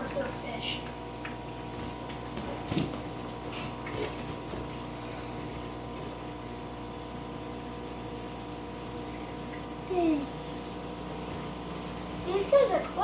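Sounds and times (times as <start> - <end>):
aquarium equipment humming: 0.0 - 13.0
knocks and water splashes: 1.2 - 3.2.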